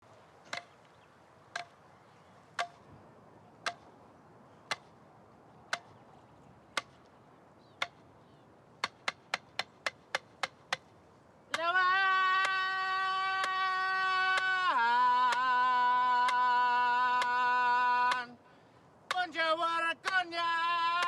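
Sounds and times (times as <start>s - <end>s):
clapsticks struck in a beat: 2.6s - 2.8s, 3.6s - 3.8s, 5.7s - 5.9s, 7.8s - 8.0s, 8.8s - 10.8s.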